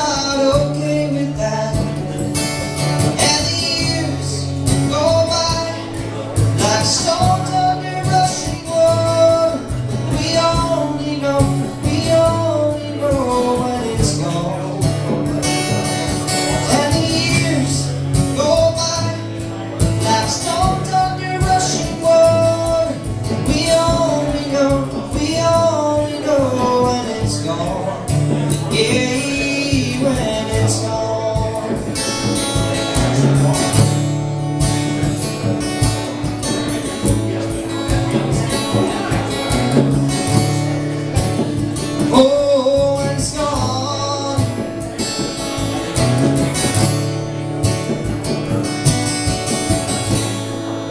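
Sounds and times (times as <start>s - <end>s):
guitar: 0.0s - 50.9s
steady bass: 0.0s - 50.9s.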